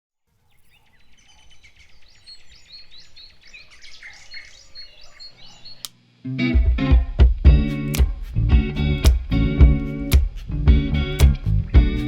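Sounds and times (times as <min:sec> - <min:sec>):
small birds chirping and twittering: 0:00.3 - 0:06.1, 0:10.3 - 0:12.0.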